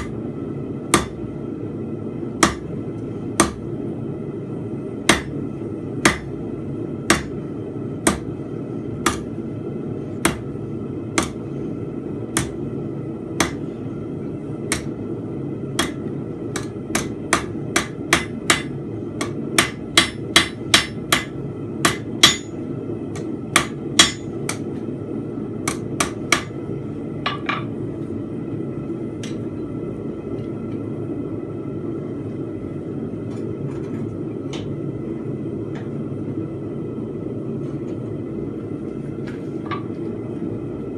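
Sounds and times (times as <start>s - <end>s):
steady hum: 0.0s - 40.9s
hammer striking steel on anvil: 0.9s - 1.2s, 2.4s - 2.7s, 5.1s - 5.3s, 6.0s - 6.3s, 7.1s - 7.4s, 12.4s - 12.6s, 13.4s - 13.6s, 14.7s - 14.9s, 15.8s - 22.6s, 23.2s - 24.7s, 25.6s - 26.6s, 27.2s - 27.7s.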